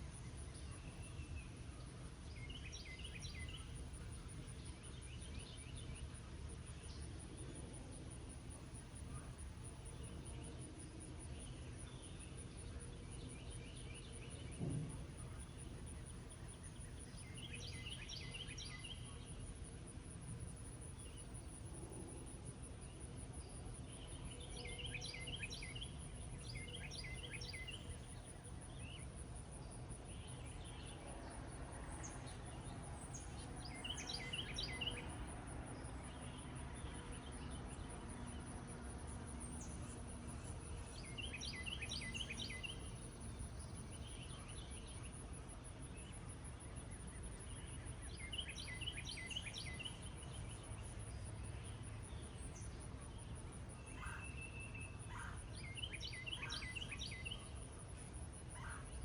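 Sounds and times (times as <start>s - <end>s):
low background noise: 0.0s - 59.0s
songbirds singing: 0.1s - 7.7s, 8.4s - 59.0s
low thump: 14.6s - 15.3s.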